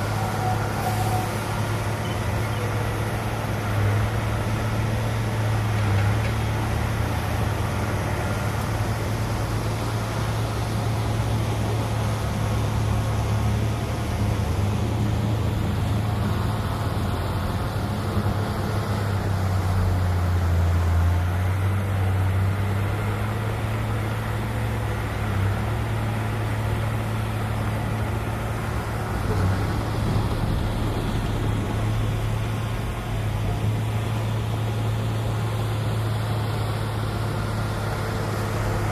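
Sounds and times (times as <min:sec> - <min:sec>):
diesel engine running under load: 0:00.0 - 0:38.9.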